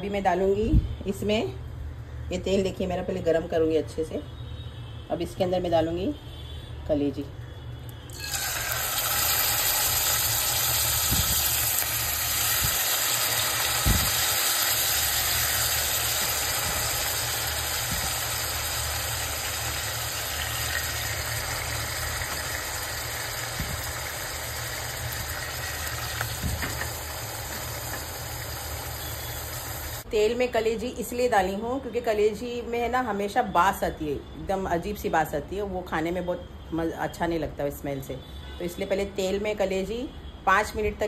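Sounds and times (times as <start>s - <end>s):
livers sizzling in hot oil: 8.1s - 30.1s.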